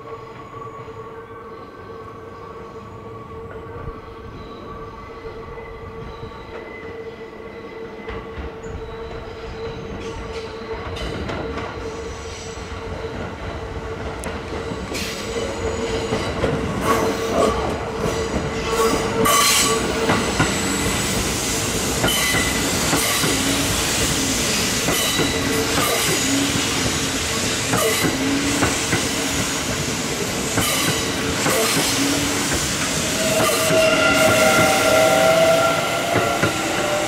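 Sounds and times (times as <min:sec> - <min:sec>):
electric train approaching: 0:00.0 - 0:37.0
wheels squealing on curve: 0:32.8 - 0:37.0.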